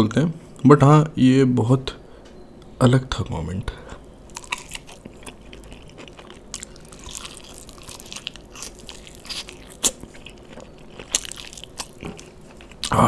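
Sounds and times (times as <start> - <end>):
chewing fried chicken: 4.3 - 13.0.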